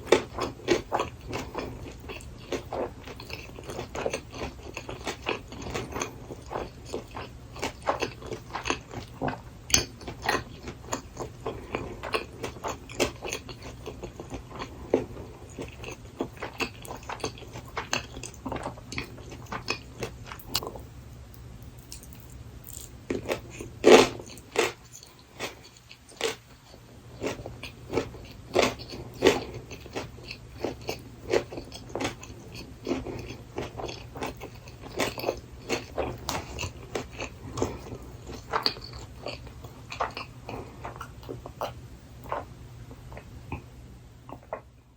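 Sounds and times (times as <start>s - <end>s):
person chewing food: 0.0s - 44.8s.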